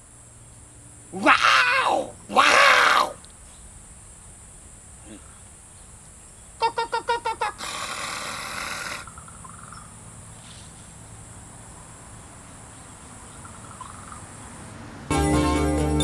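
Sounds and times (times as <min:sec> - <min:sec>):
crickets trilling: 0:00.0 - 0:15.1
jingly music: 0:15.1 - 0:16.0.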